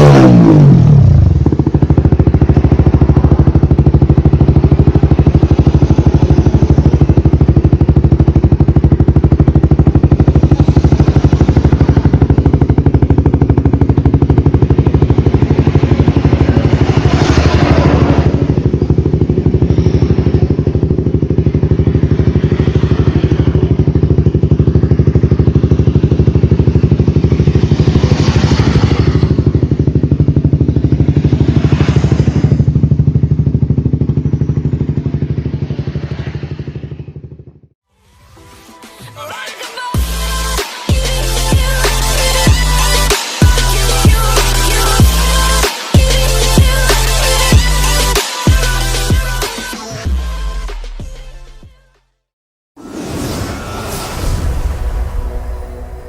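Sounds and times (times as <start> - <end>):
motorcycle engine idling: 0.1 - 37.8, 40.0 - 51.2
short rushes of noise: 52.8 - 56.0.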